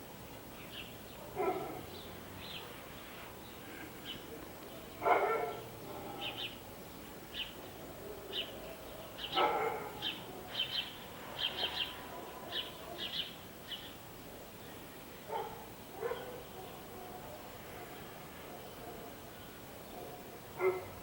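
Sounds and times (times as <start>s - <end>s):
small birds chirping: 0.3s - 14.0s
dog barking: 1.2s - 1.9s, 5.0s - 5.6s, 9.3s - 10.6s, 11.6s - 13.2s, 15.3s - 18.0s, 19.9s - 21.0s.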